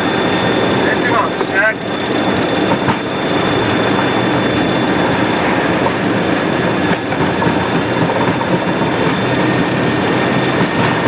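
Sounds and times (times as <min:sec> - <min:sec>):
jet engines at takeoff thrust: 0:00.0 - 0:11.0.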